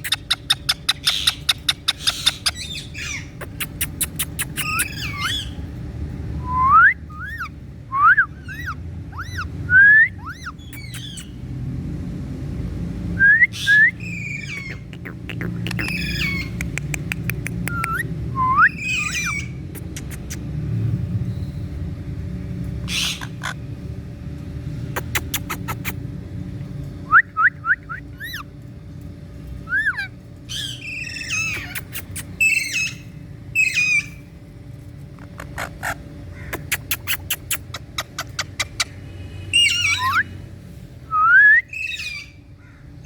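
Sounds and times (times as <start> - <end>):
parakeet squawking and chirping: 0.0 - 5.6, 7.1 - 7.6, 8.3 - 9.6, 10.2 - 11.4, 13.5 - 18.1, 18.7 - 20.5, 22.8 - 23.7, 24.9 - 26.1, 28.1 - 28.5, 29.7 - 34.3, 35.0 - 40.3
steady low hum: 0.0 - 43.0.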